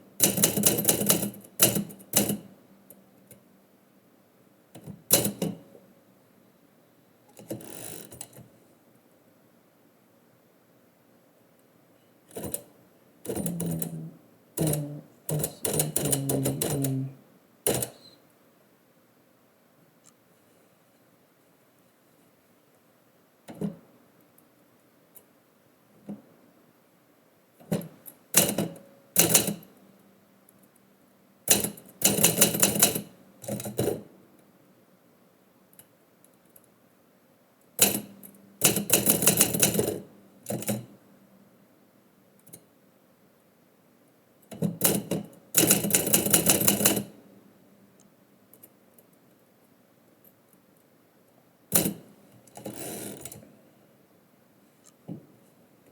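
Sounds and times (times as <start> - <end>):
typewriter keys clacking: 14.6 - 17.0.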